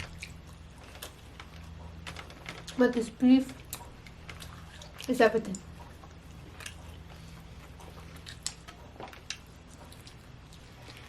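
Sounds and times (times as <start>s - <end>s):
eating clicks and smacks: 0.0s - 2.8s, 3.5s - 11.0s.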